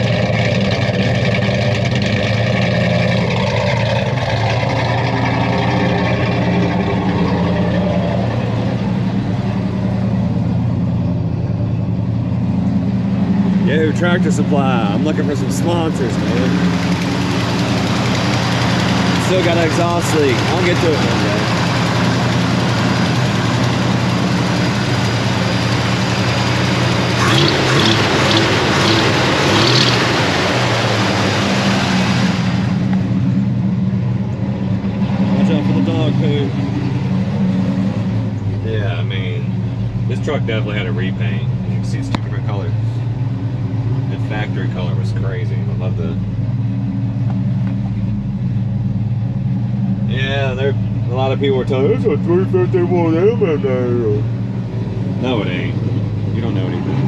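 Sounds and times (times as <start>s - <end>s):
pickup truck engine idling: 0.0s - 57.0s.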